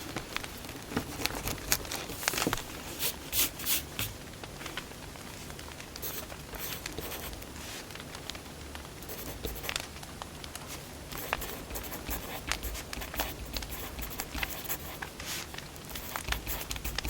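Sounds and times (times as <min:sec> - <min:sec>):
firewood crackling and popping: 0:00.0 - 0:03.0, 0:04.0 - 0:11.5, 0:15.0 - 0:15.9.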